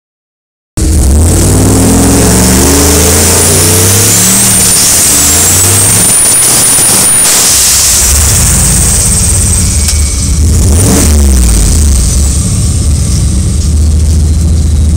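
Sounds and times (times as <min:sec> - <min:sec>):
drag car accelerating: 0:00.8 - 0:14.9
lower engine sound: 0:00.8 - 0:14.9
turbo whistle: 0:02.6 - 0:10.4.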